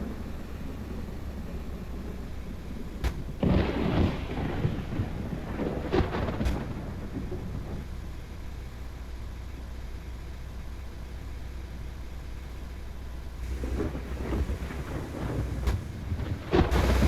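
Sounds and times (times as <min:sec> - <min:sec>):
low thunder rumble: 0:00.0 - 0:08.8, 0:13.4 - 0:17.0
thunder cracks and peals: 0:03.1 - 0:08.0, 0:13.5 - 0:17.0.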